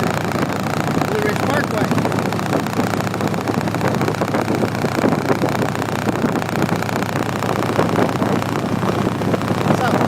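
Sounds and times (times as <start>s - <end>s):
motorcycle engine drone: 0.0s - 10.0s
wind rush over microphone: 0.0s - 10.0s.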